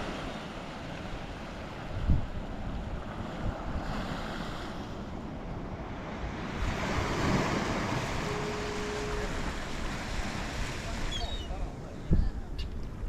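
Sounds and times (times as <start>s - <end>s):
ocean surf against rocks: 0.0s - 13.0s
wind buffeting microphone: 1.0s - 4.3s, 5.0s - 13.0s
faint steady tone: 6.7s - 10.0s.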